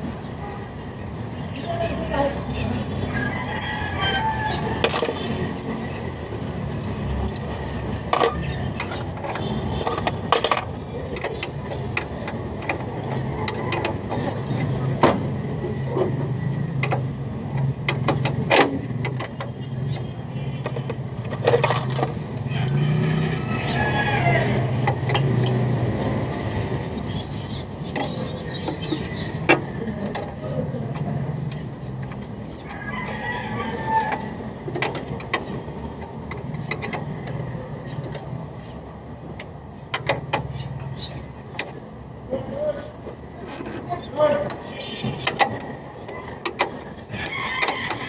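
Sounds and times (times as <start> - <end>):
rooster crowing: 2.9 - 5.3, 22.4 - 25.1, 32.6 - 34.5, 47.1 - 48.0
metallic clinks and knocks: 4.8 - 5.8, 6.8 - 12.1, 20.6 - 23.0.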